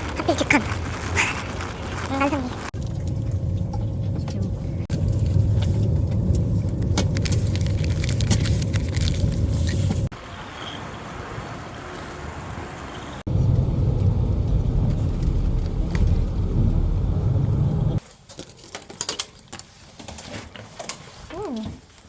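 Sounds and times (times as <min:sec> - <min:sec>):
vehicle rumble from inside: 0:00.4 - 0:18.0.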